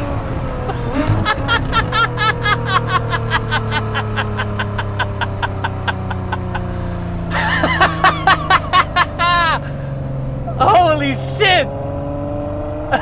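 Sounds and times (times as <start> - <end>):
car engine idling: 0.0 - 11.6
man laughing hard: 0.4 - 10.0.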